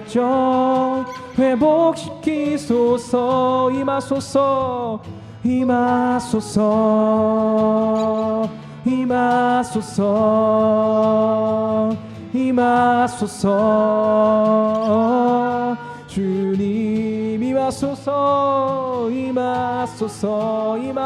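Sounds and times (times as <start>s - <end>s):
group singing slow worship song: 0.0s - 21.0s.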